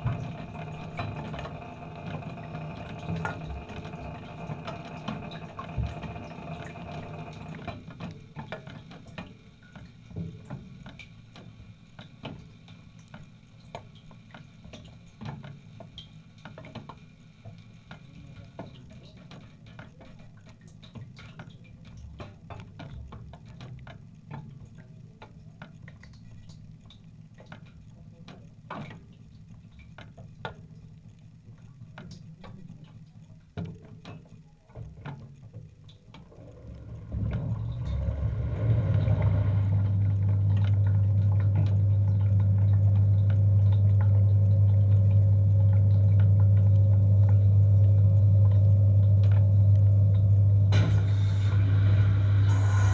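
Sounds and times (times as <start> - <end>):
dishwasher motor humming: 0.0 - 11.0, 34.6 - 52.9
water drips and ticks: 0.0 - 50.8.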